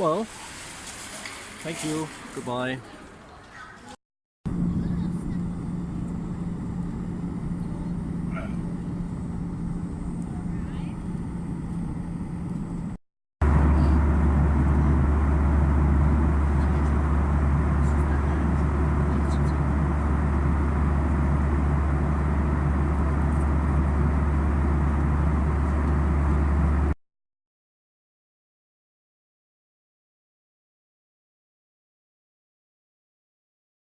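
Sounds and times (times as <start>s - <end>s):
vehicle rumbling in motion: 4.5s - 27.0s.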